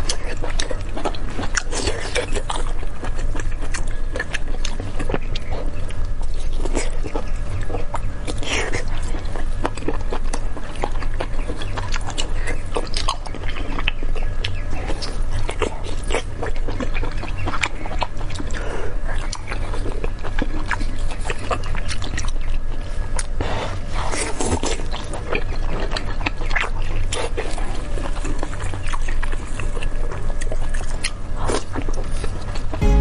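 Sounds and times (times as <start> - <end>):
close chewing and mouth clicks: 0.0 - 32.8.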